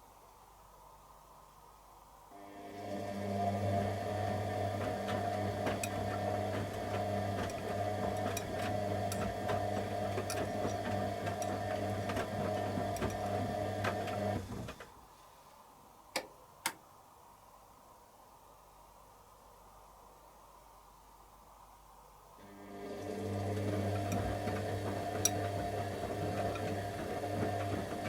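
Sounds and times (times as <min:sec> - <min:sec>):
washing machine drum motor humming: 0:02.4 - 0:14.8, 0:22.4 - 0:28.0.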